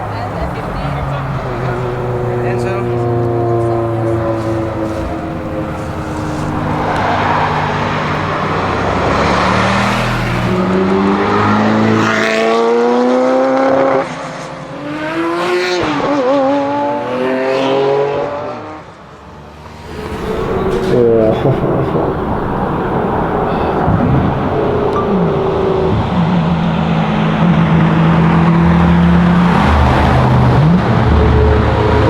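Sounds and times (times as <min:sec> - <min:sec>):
sports car engine revving hard: 0:00.0 - 0:18.8.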